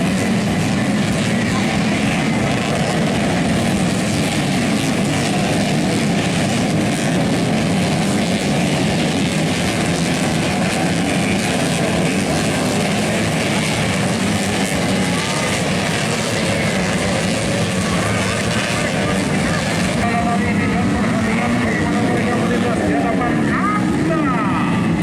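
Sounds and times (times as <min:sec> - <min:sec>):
racing motorcycle engines: 0:00.0 - 0:25.0.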